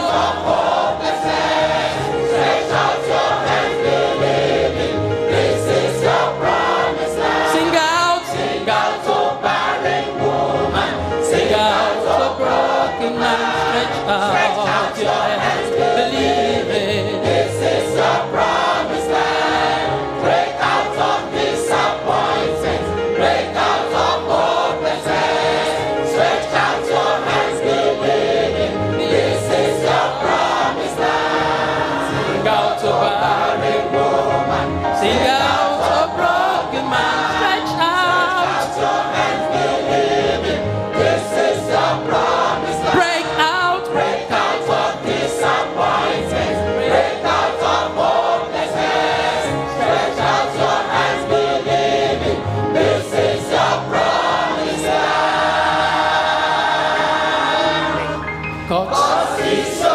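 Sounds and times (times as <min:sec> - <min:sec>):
choir singing gospel with band: 0:00.0 - 0:59.9.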